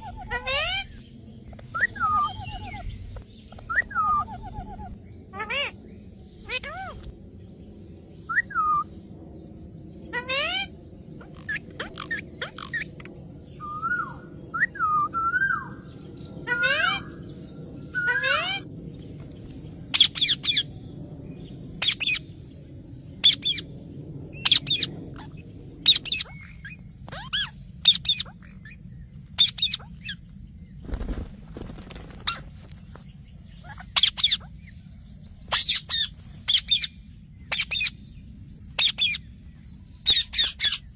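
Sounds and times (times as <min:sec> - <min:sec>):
parrot high-pitched calls: 0:00.0 - 0:02.9, 0:03.5 - 0:05.8, 0:06.4 - 0:07.0, 0:10.1 - 0:15.8, 0:16.4 - 0:17.3, 0:17.9 - 0:18.7, 0:19.9 - 0:20.7, 0:21.8 - 0:22.3, 0:23.2 - 0:23.7, 0:24.3 - 0:30.2, 0:33.6 - 0:34.7, 0:35.5 - 0:38.0, 0:38.8 - 0:39.2, 0:40.0 - 0:40.9.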